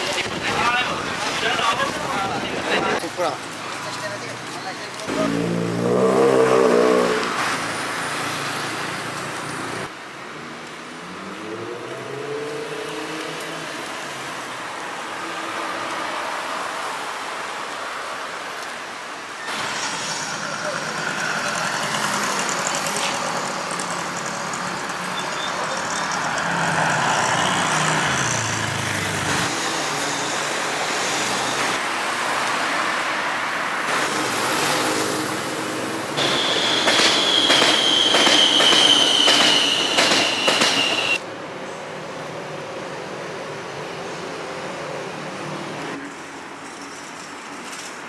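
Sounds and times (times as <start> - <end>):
train running: 33.8 - 41.2
high falling squeal with clicks: 34.0 - 41.2.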